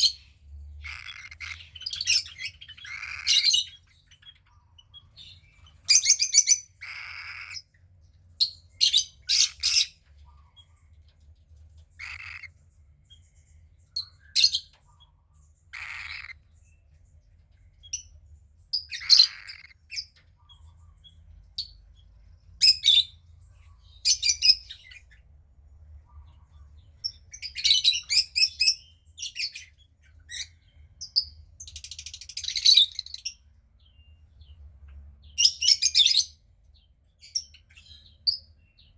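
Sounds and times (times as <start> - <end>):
cockatiel chick chirping: 0.0 - 7.6, 8.8 - 10.0, 12.0 - 12.5, 15.8 - 16.4, 18.8 - 21.1, 23.8 - 25.2.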